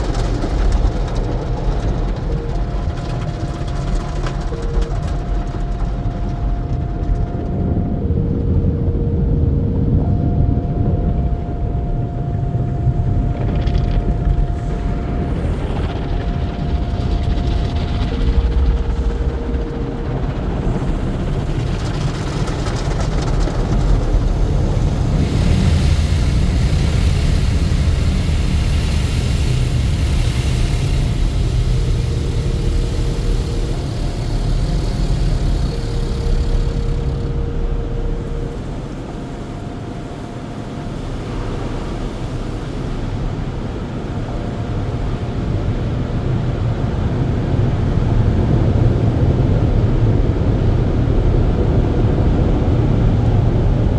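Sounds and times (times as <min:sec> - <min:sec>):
car wash machinery rumbling: 0:00.0 - 0:53.9
short humming tones: 0:23.2 - 0:45.5
car wash hiss: 0:23.9 - 0:45.3.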